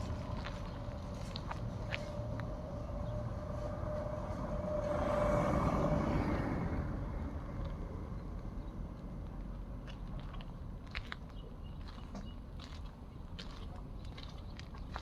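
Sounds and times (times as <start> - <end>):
passing engine whine: 0.0 - 9.7.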